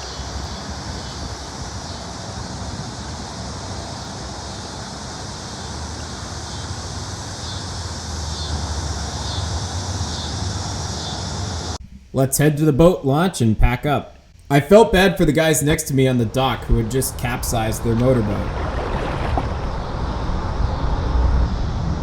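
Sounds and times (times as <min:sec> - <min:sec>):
low hum of road traffic: 0:00.0 - 0:11.8, 0:15.2 - 0:22.0
wind on microphone: 0:00.0 - 0:12.1, 0:16.1 - 0:22.0.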